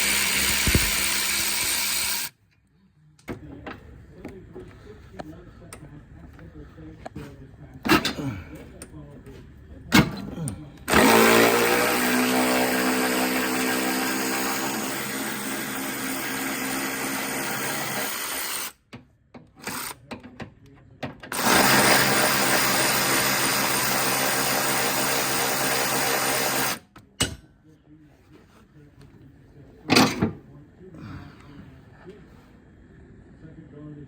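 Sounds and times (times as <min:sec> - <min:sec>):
power drill motor running: 0:00.0 - 0:02.3, 0:10.9 - 0:18.8, 0:19.6 - 0:20.0, 0:21.3 - 0:26.8.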